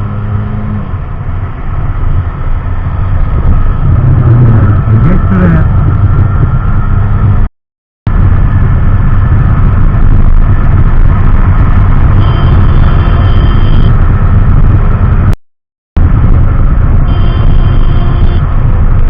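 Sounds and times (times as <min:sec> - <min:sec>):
wind noise on microphone: 0:00.0 - 0:07.5, 0:08.1 - 0:15.4, 0:16.0 - 0:19.0
motorcycle engine running: 0:08.2 - 0:15.4.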